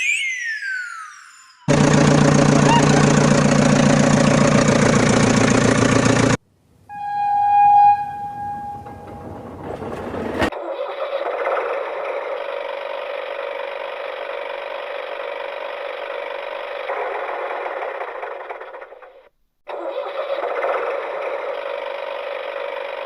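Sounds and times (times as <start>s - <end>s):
electronic tone: 2.6s - 3.1s, 6.9s - 9.3s.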